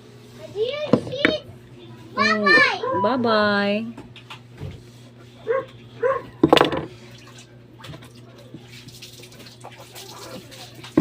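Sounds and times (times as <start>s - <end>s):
dog barking: 5.4s - 6.4s.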